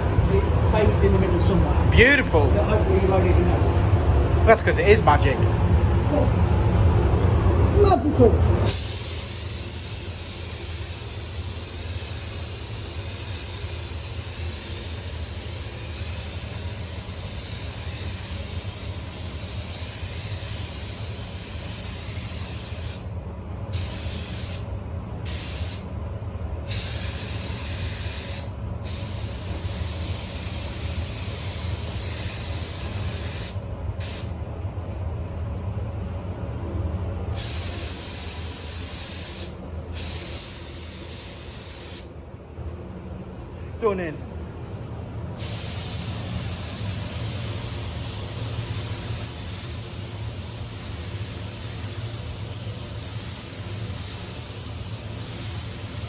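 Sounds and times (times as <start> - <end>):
spray gun hissing: 8.7 - 23.0, 23.7 - 24.7, 25.3 - 25.8, 26.7 - 34.3, 37.4 - 42.1, 45.4 - 56.0.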